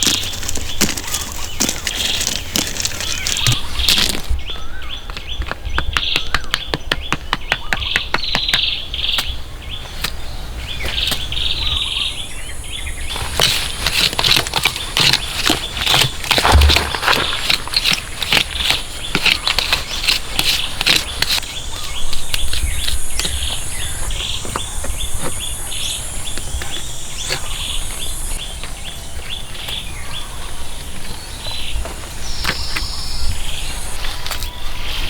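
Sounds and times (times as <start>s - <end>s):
birds chirping: 0.0s - 35.0s
insects buzzing: 9.0s - 35.0s
sharp knocks and clicks: 15.0s - 19.4s.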